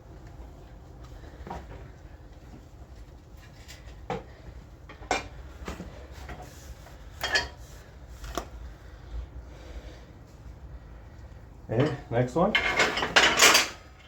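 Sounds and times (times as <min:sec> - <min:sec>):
wrench clanking on steel plate: 0:11.7 - 0:13.8.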